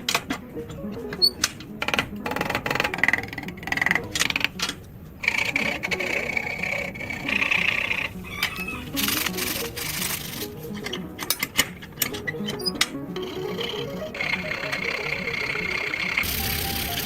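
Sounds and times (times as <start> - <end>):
scraping and rubbing strokes: 5.2 - 10.8.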